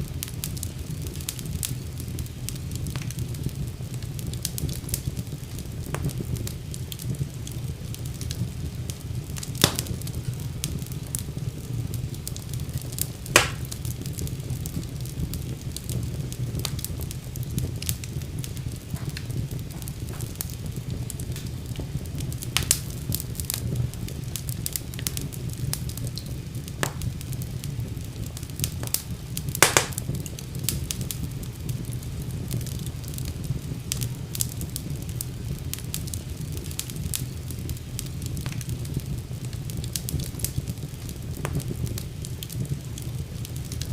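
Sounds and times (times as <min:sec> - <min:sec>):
fire crackling: 0:00.0 - 0:43.9
fire popping: 0:00.0 - 0:43.9.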